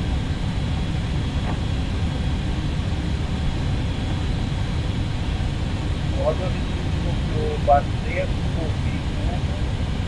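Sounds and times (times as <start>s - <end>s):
faint high whine: 0.0s - 10.0s
low cockpit rumble: 0.0s - 10.0s.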